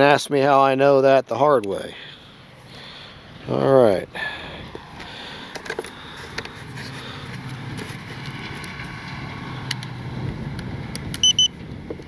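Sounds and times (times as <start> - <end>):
distant engine hum: 1.9 - 12.0.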